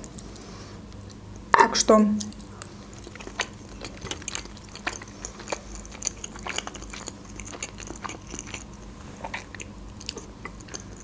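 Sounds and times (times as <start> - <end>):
wet chewing mouth clicks: 2.2 - 11.0.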